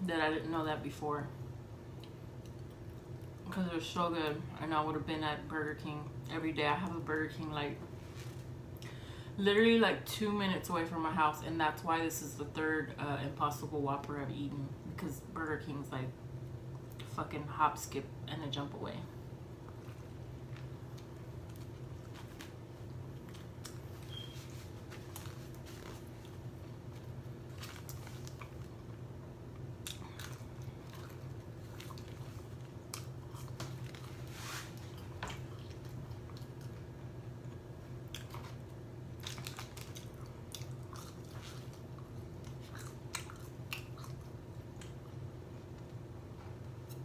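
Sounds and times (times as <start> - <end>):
person chewing burger: 19.6 - 36.9, 38.0 - 45.2.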